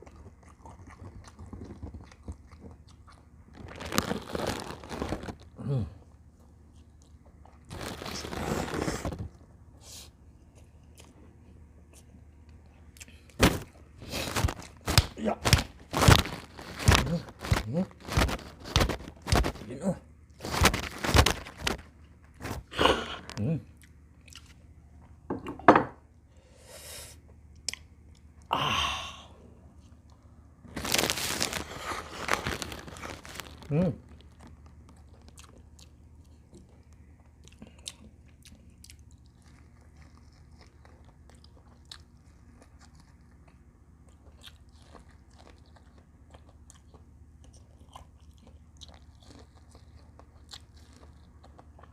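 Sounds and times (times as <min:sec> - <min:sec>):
person chewing with wet smacks: 0:00.0 - 0:03.6, 0:23.3 - 0:25.2, 0:27.2 - 0:28.5, 0:34.1 - 0:51.9
breathy exhale: 0:26.3 - 0:27.2.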